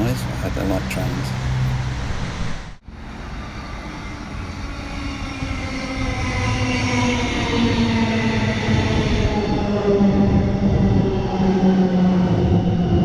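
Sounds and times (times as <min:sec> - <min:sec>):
electric train running through: 0:00.0 - 0:02.1.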